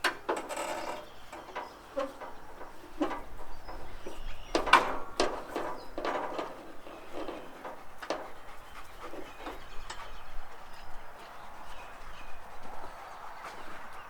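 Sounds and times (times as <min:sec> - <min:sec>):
parts knocking and rattling: 0:00.0 - 0:10.1.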